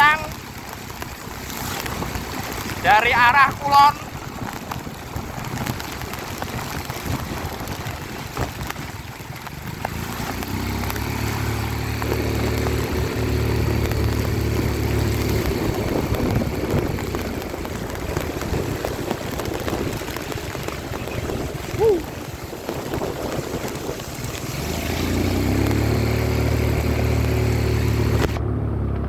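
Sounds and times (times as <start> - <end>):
rain: 0.0 - 29.0
wind: 0.0 - 29.0
vehicle engine passing: 9.6 - 21.8, 22.4 - 29.0.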